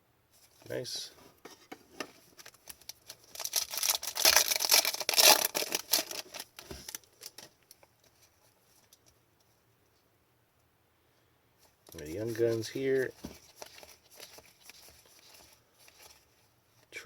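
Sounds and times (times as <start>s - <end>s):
foil wrapper crinkling and tearing: 2.3s - 7.8s, 11.9s - 16.2s.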